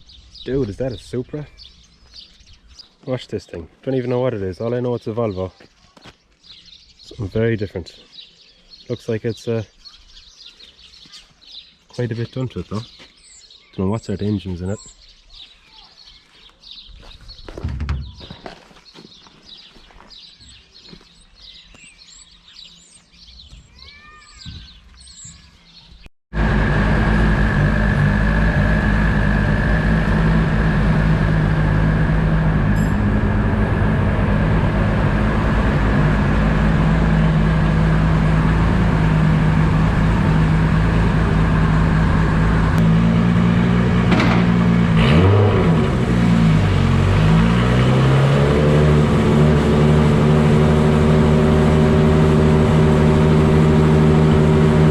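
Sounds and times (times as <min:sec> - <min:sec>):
small birds chirping: 0:00.0 - 0:26.1
car engine running with whine: 0:26.3 - 0:54.9.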